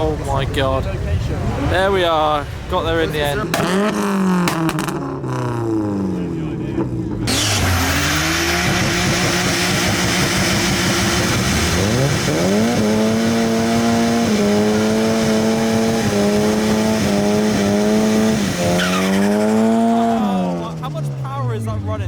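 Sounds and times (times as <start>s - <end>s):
car engine revving: 0.0s - 22.0s
tyres spinning and squealing: 17.8s - 21.3s.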